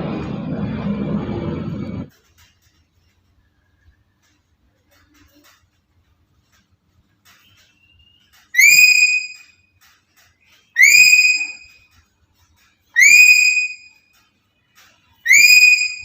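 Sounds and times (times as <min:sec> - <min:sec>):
parrot whistled call: 0:07.8 - 0:09.5, 0:10.8 - 0:11.8, 0:13.0 - 0:14.0, 0:15.2 - 0:16.0.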